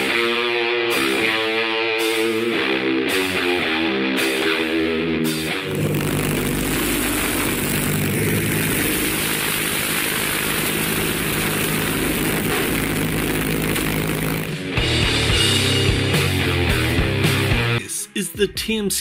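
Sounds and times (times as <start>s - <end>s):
aircraft piston engine drone: 5.7s - 14.7s.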